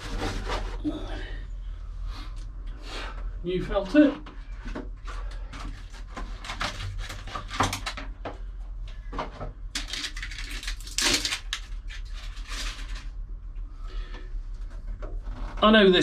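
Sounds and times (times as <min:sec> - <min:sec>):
steady low hum: 0:00.0 - 0:16.0
packaging clicks and rustles: 0:09.8 - 0:13.1.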